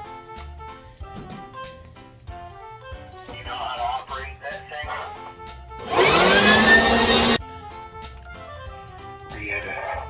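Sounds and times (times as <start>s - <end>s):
power blower motor whine: 5.8s - 7.4s.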